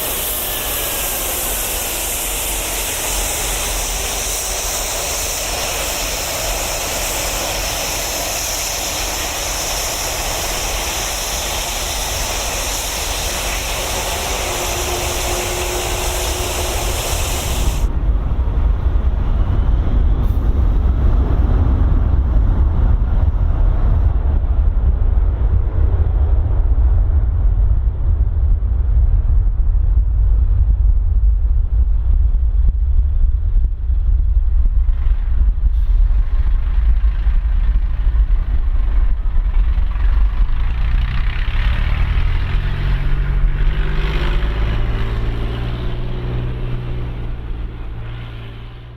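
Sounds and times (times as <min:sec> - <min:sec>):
fluid spraying hiss: 0:00.0 - 0:17.9
low engine rumble: 0:00.0 - 0:48.9.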